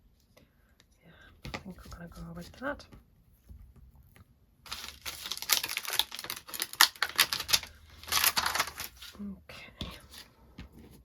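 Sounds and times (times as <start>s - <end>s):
clicking and rustling of card: 4.7s - 9.2s.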